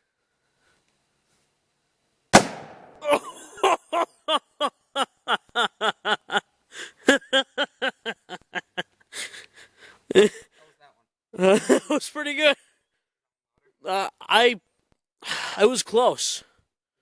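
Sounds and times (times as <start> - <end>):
plastic bottle bursting bang: 2.4 - 3.0
person laughing: 3.0 - 10.5, 11.4 - 12.0.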